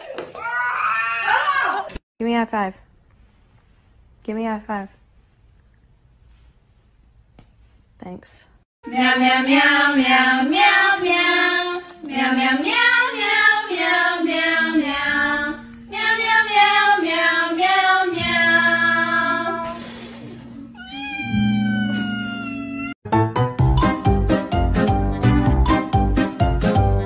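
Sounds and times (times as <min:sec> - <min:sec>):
tune sung in meows: 0:20.8 - 0:23.0.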